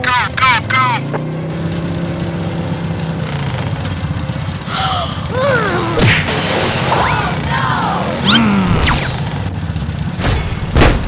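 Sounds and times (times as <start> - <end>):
cartoon car engine hum: 0.0 - 11.0
sudden burst: 8.2 - 9.5.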